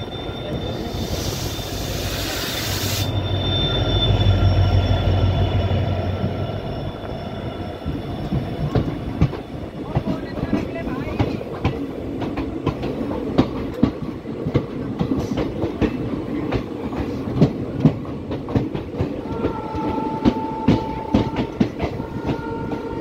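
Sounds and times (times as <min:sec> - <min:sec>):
train wheel-and-rail rumble: 0:00.0 - 0:23.0
train horn: 0:19.2 - 0:23.0.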